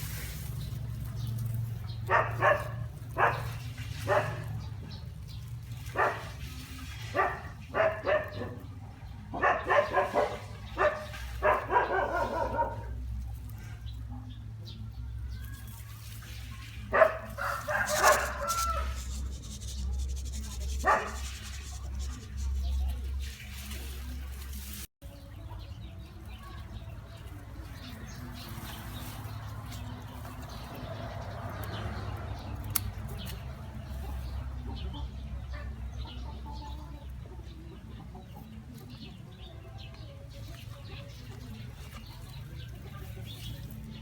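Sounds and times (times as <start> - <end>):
dog barking and yipping: 2.0 - 4.5, 6.0 - 6.3, 7.1 - 8.6, 9.3 - 12.9, 16.9 - 19.6, 20.7 - 22.0.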